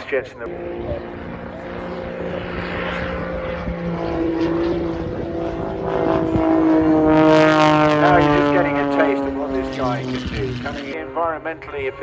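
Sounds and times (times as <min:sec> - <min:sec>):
propeller plane engine: 0:00.0 - 0:12.0.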